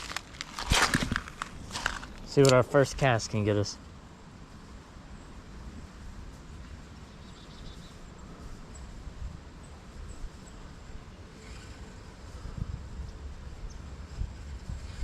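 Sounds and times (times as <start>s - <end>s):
wind buffeting microphone: 0.0s - 2.4s, 12.2s - 15.0s.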